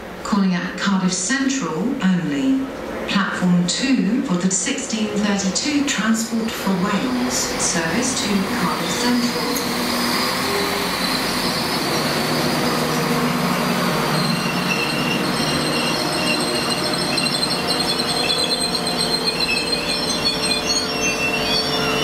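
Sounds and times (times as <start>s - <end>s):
diesel train running slowly: 1.8s - 22.0s
high wavering brake squeal: 6.3s - 22.0s.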